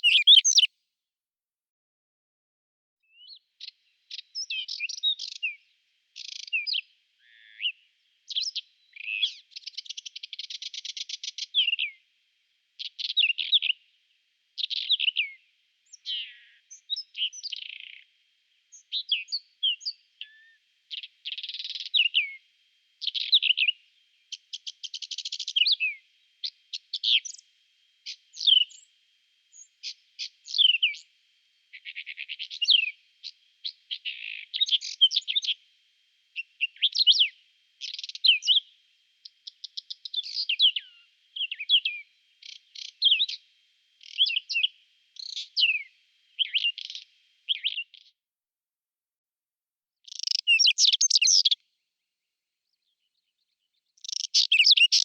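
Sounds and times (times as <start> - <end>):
bird singing scratchy trills: 0.0 - 0.7, 29.5 - 31.1, 36.4 - 38.6, 39.2 - 43.4, 44.0 - 48.0, 50.1 - 51.6, 54.0 - 55.0.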